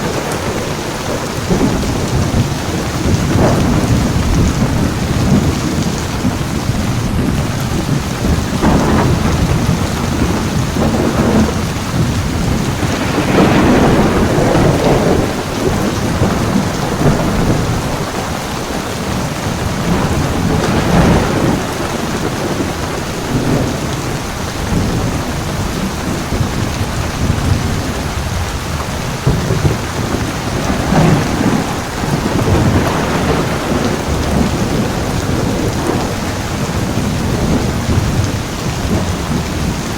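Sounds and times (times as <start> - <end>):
heavy rain: 0.0 - 39.9
rolling thunder: 0.0 - 39.9.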